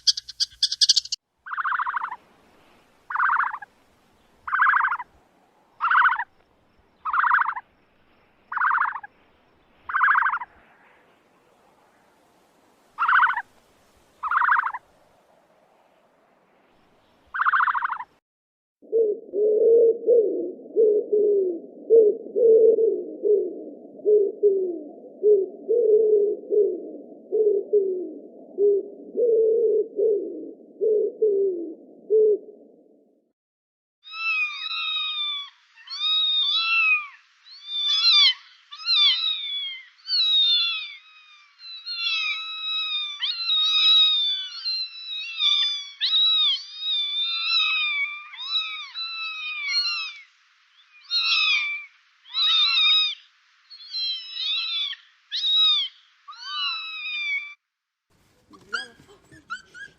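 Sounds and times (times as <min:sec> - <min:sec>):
pigeons cooing: 0:18.9 - 0:32.5, 0:58.5 - 0:59.9
kittens meowing: 0:34.1 - 0:50.2, 0:51.1 - 0:53.2, 0:53.8 - 0:57.6.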